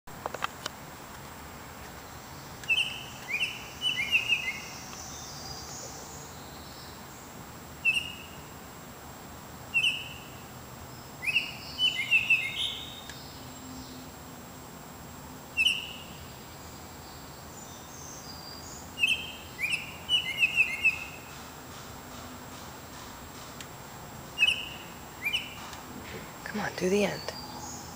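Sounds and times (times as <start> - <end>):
distant birds chirping: 0.1 - 27.9
songbird whistling: 2.6 - 7.0, 7.8 - 8.5, 9.7 - 10.5, 11.2 - 13.4, 15.6 - 16.3, 17.7 - 21.4, 24.3 - 25.8.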